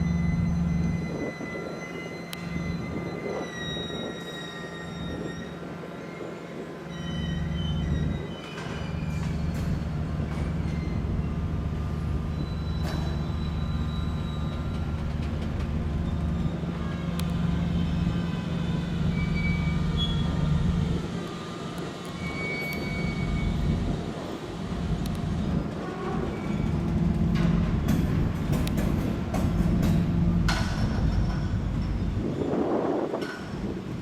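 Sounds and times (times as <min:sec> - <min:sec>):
train moving slowly: 0:00.0 - 0:34.0
wheels squealing on rails: 0:00.0 - 0:34.0.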